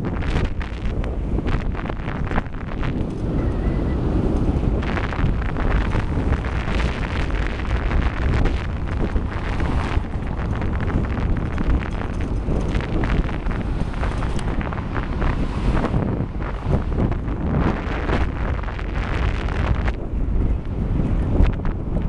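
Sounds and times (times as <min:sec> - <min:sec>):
wind buffeting microphone: 0:00.0 - 0:22.0
bicycle clicks and rattles: 0:04.3 - 0:15.4.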